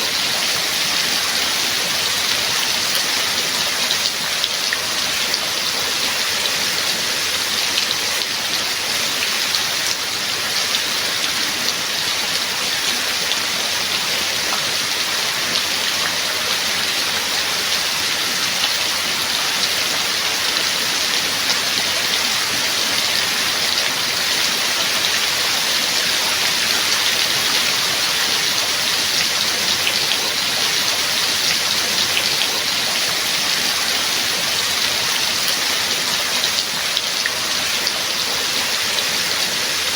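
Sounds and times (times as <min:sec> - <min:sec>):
raindrops: 0:00.0 - 0:39.9
steady rain hiss: 0:00.0 - 0:39.9.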